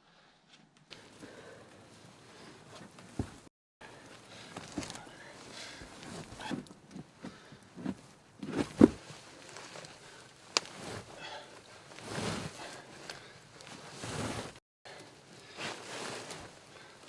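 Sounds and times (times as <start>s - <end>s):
rustling and knocking: 2.7s - 3.5s, 5.7s - 9.8s.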